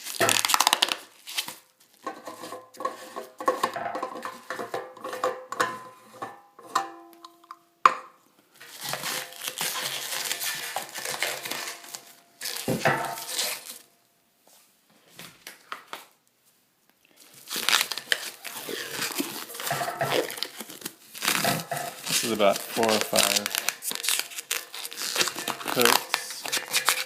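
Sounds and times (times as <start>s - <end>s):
rubber coating crinkling and tearing: 0.0s - 2.8s, 8.6s - 13.9s, 17.1s - 27.0s.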